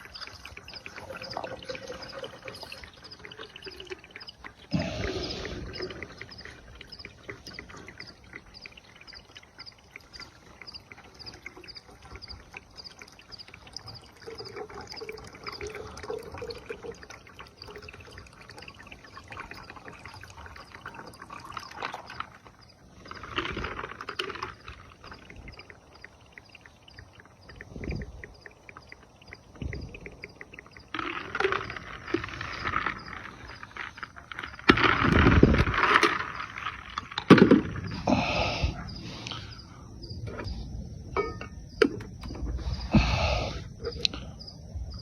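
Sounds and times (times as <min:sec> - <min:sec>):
kindling crackling and popping: 0:00.0 - 0:38.2
faint high chirp: 0:00.1 - 0:07.2.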